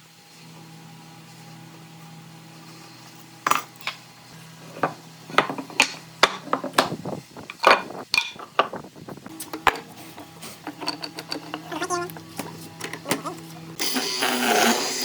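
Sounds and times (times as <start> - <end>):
tools knocking and clinking: 4.8 - 8.8, 10.6 - 13.2.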